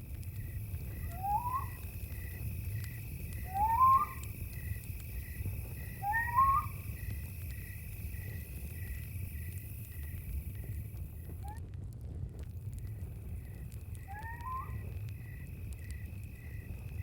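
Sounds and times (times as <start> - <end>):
cricket trill: 0.0 - 11.6, 12.5 - 17.0
campfire crackling: 0.0 - 17.0
pulsing chirp: 0.9 - 1.9, 3.3 - 4.7, 5.9 - 7.1, 14.0 - 15.0
rising whistled animal calls: 0.9 - 1.9, 3.4 - 4.3, 5.9 - 6.8, 14.0 - 14.9.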